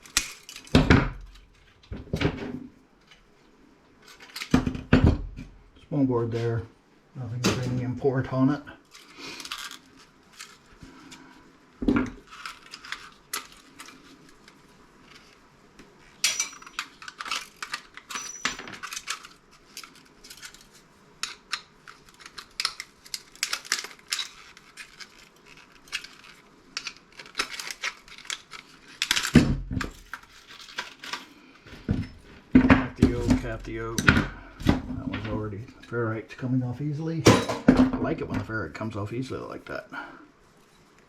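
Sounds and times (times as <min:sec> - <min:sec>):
metal and plastic parts clinking: 0:12.2 - 0:15.4, 0:16.1 - 0:31.3.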